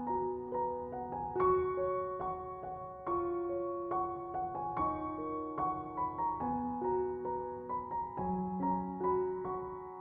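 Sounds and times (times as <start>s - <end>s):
soft piano music: 0.0s - 10.0s.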